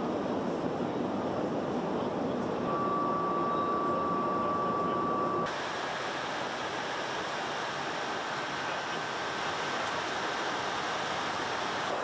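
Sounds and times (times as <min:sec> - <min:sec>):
steady high tone: 0:02.7 - 0:05.5.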